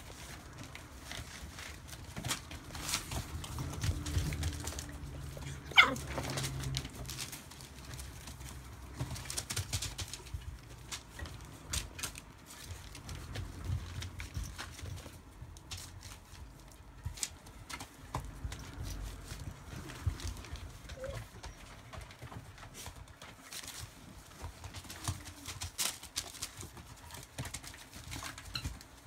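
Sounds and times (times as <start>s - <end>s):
paws clicking and pattering: 0.0s - 29.0s
puppy yelp: 5.4s - 6.4s, 20.5s - 22.0s.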